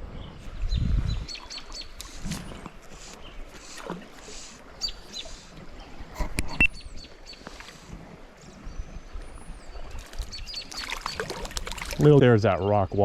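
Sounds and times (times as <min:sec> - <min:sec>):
small birds chirping: 0:00.2 - 0:13.0
small stream rushing: 0:09.9 - 0:12.2.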